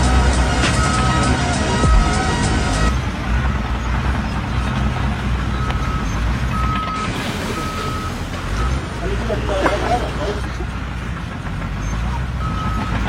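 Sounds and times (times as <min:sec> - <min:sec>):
reversing alarm beeping: 0:00.0 - 0:03.6, 0:05.4 - 0:09.7, 0:12.4 - 0:13.0
low engine rumble: 0:00.0 - 0:13.0.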